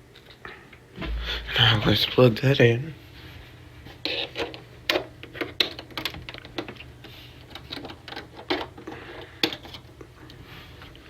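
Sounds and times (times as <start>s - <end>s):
faint low hum: 0.0s - 5.5s.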